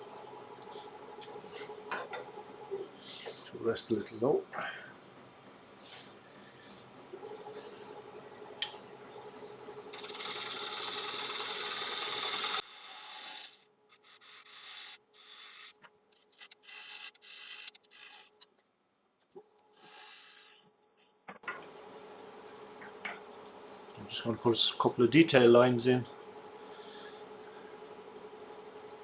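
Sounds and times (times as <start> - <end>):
lathe whine: 9.3 - 13.5
gouge scraping wood: 10.0 - 18.5, 19.8 - 20.6.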